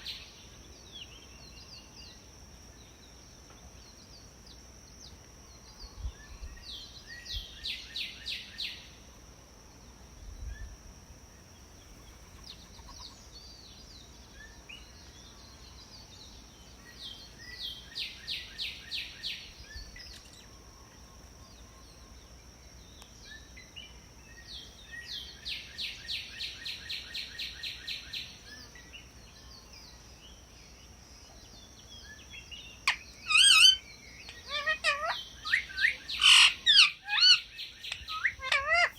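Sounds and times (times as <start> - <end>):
faint high whine: 0.0 - 38.9
parrot chattering: 32.9 - 38.9
parrot squawk: 32.9 - 38.9.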